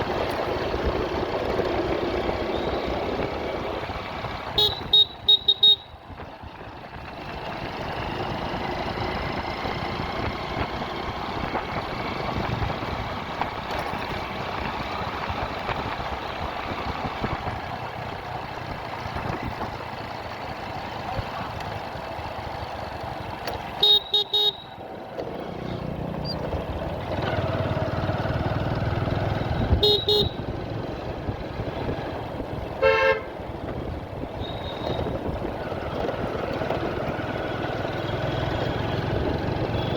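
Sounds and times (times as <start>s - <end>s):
motorcycle engine: 0.0s - 39.9s
road noise: 0.0s - 39.9s
horn toots: 4.5s - 5.9s, 23.8s - 24.7s, 29.6s - 30.5s, 32.8s - 33.4s
wind noise: 10.1s - 17.7s.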